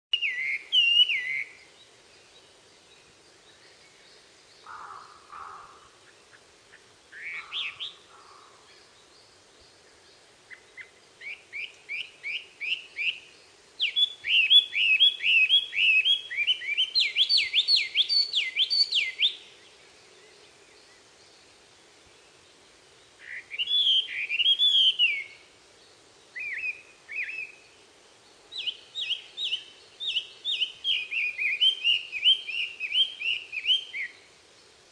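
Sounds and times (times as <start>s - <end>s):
songbirds singing: 0.1s - 34.9s.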